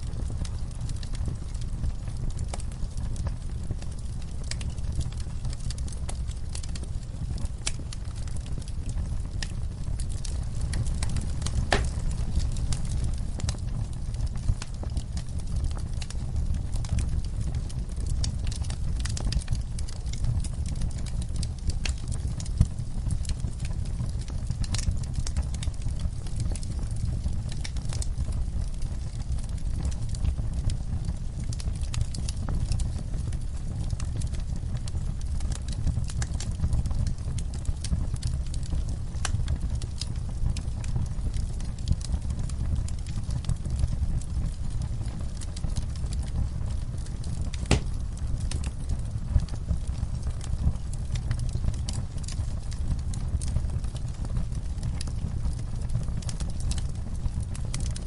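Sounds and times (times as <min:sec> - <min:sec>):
low rumble of flames: 0:00.0 - 0:58.0
wood fire crackling: 0:00.0 - 0:58.0
loud fire pop: 0:11.6 - 0:12.2, 0:47.6 - 0:48.0.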